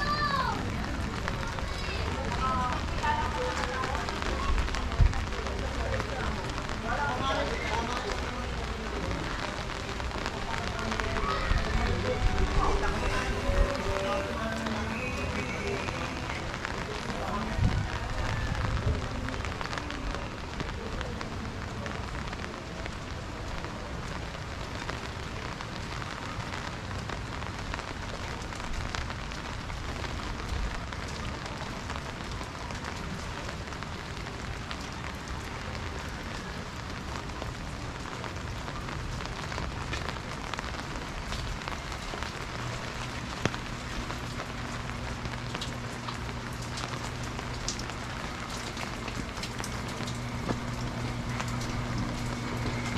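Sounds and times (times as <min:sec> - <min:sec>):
rain falling on street: 0:00.0 - 0:52.9
low steady hum: 0:40.4 - 0:52.9.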